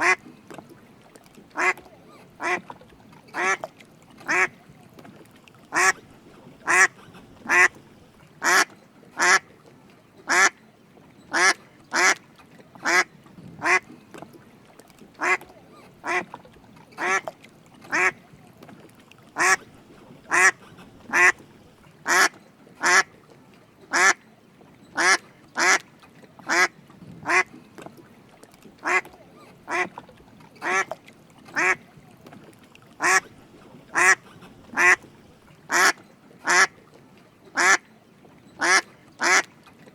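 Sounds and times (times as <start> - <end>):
duck quacking: 0.0 - 0.2, 1.6 - 1.8, 3.4 - 3.6, 4.3 - 4.5, 5.7 - 6.0, 6.6 - 7.8, 8.4 - 9.4, 11.3 - 12.2, 12.8 - 13.8, 15.2 - 15.4, 16.0 - 16.3, 17.9 - 18.2, 19.4 - 19.6, 20.3 - 21.4, 22.1 - 23.1, 25.0 - 25.8, 26.5 - 27.5, 28.8 - 29.1, 29.7 - 29.9, 30.6 - 30.9, 31.6 - 31.8, 33.0 - 33.3, 33.9 - 35.1, 35.7 - 36.7, 37.6 - 37.8, 38.6 - 39.5.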